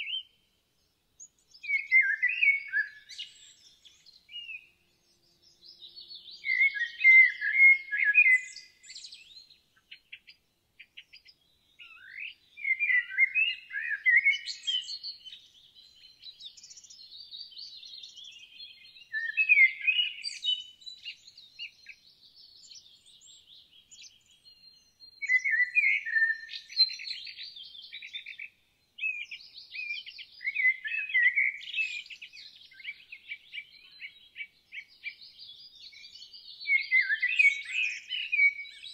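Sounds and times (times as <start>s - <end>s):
songbirds warbling and chirping: 0.0s - 38.9s.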